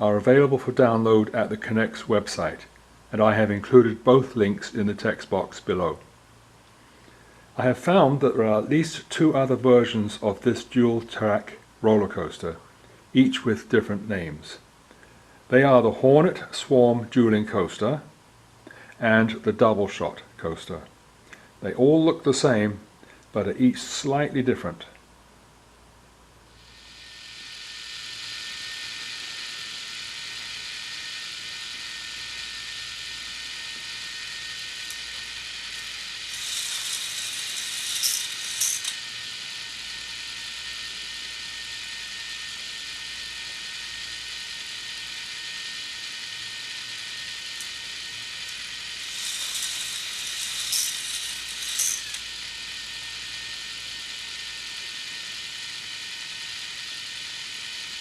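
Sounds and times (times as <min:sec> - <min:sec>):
chain lift whirring and clicking: 0:26.7 - 0:58.0.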